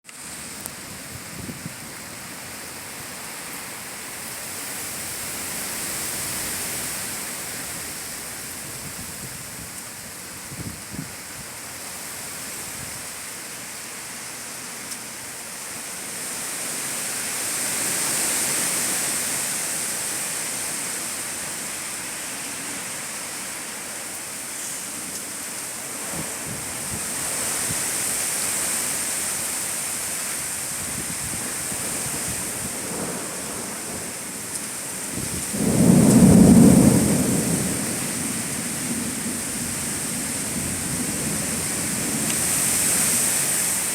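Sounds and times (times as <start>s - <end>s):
rain: 0.0s - 43.9s
strong wind gusts: 0.6s - 3.0s, 4.2s - 11.6s, 25.9s - 43.9s.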